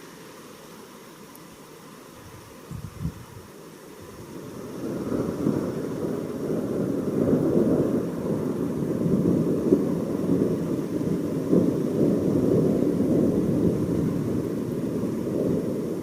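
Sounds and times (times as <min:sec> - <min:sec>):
thunder rumbling: 0:04.4 - 0:16.0.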